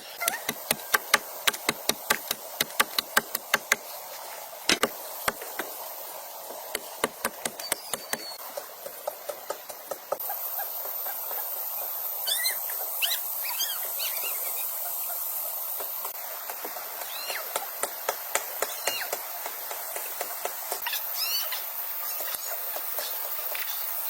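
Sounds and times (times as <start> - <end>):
rain hiss: 0.0 - 24.0
sharp taps: 0.5 - 3.8, 4.7 - 5.7, 6.8 - 8.4
high squeaky chirps: 7.4 - 8.4.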